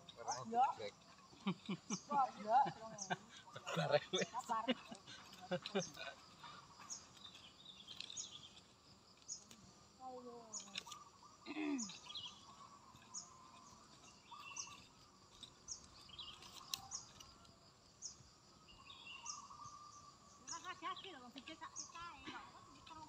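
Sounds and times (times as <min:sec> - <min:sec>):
bird chirping: 0:00.0 - 0:23.0.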